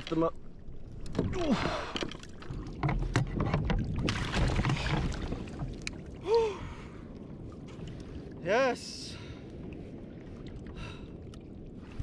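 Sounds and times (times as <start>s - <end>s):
water splashing: 0.0s - 6.8s.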